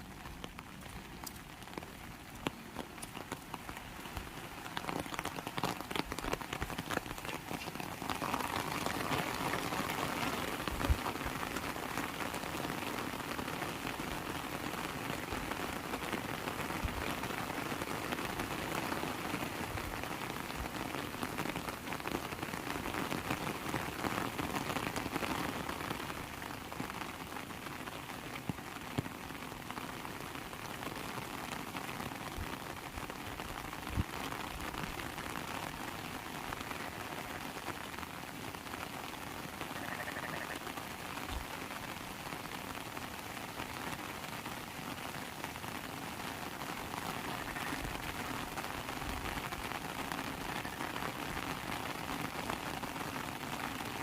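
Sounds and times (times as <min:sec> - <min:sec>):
heavy raindrop knocking: 0:00.0 - 0:11.6
heavy rain falling: 0:00.0 - 0:54.0.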